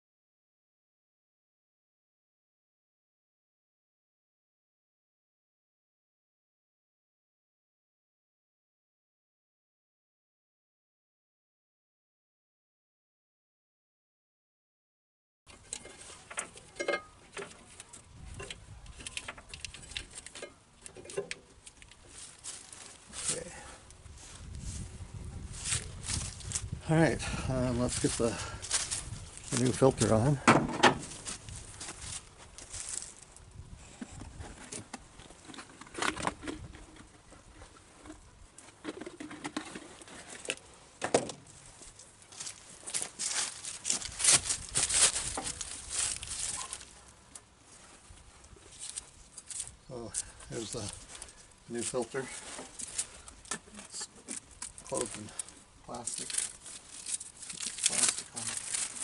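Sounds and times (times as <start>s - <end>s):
parts being handled: 15.5s - 23.6s, 38.1s - 59.0s.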